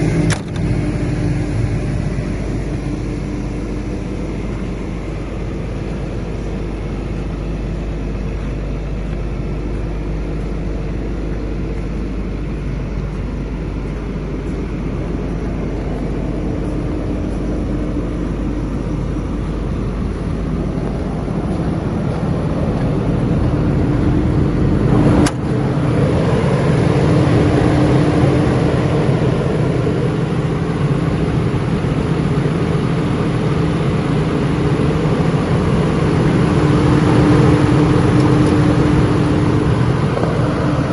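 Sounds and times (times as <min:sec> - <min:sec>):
excavator diesel engine running: 0:00.0 - 0:40.9
sharp click: 0:00.3 - 0:00.7.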